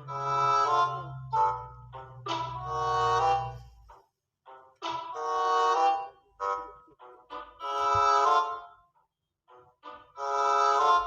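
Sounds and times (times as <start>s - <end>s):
reedy harmonica-like chord: 0.0s - 3.8s, 4.5s - 8.7s
short musical notes: 0.0s - 8.8s.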